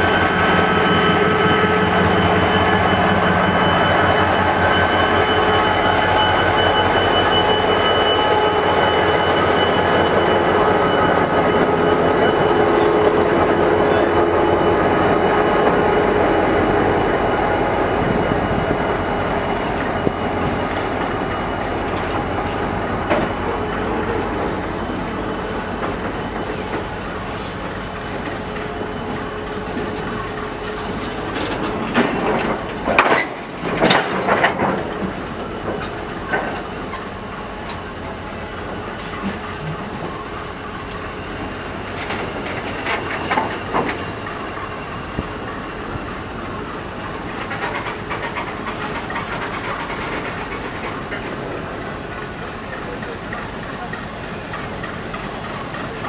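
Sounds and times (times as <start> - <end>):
thin whine: 0.0 - 32.3
railway carriages rolling: 0.0 - 56.0.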